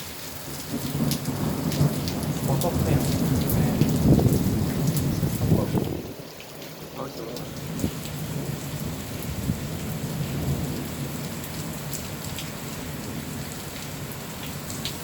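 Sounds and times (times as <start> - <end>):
heavy rain pouring: 0.0 - 15.0
low rumble of thunder: 0.6 - 6.3, 7.4 - 13.5.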